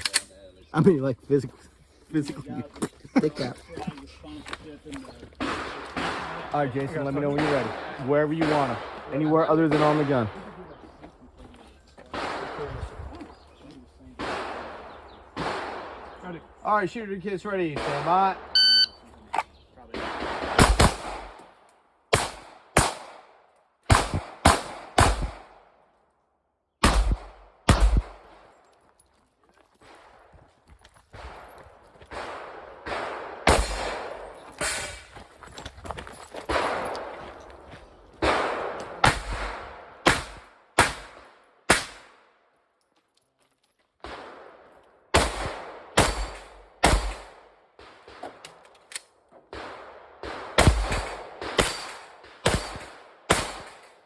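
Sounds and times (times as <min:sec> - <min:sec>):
rapid gunfire: 0:20.0 - 0:21.3, 0:23.9 - 0:25.5, 0:26.8 - 0:28.3, 0:49.6 - 0:53.8.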